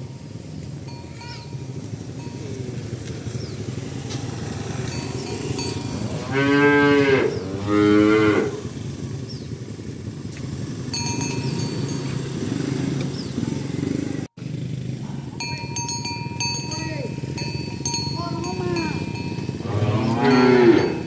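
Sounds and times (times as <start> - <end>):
cow mooing: 3.7 - 9.1, 18.6 - 21.0.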